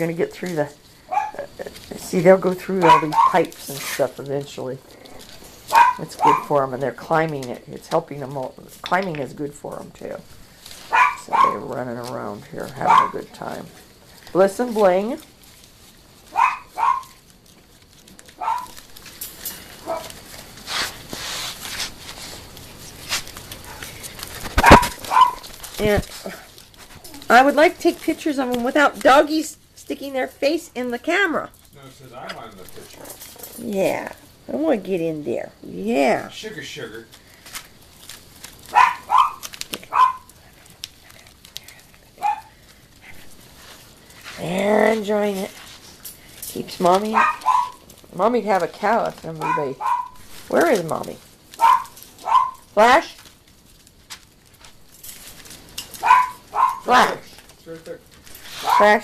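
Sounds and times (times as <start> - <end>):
dog barking sharply: 5.7 - 6.5, 10.9 - 11.6, 16.4 - 17.2, 18.4 - 18.7, 24.6 - 25.4, 38.7 - 40.3, 47.2 - 47.8, 49.4 - 50.2, 51.6 - 52.6, 56.0 - 56.9
brief scuffling: 19.8 - 26.1.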